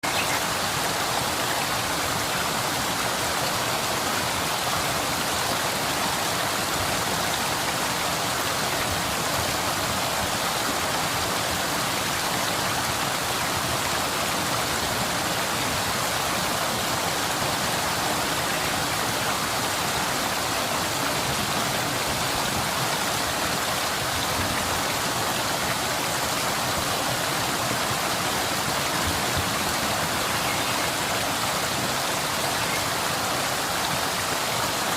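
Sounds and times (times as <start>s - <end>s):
waterfall and stream pouring: 0.0s - 34.9s.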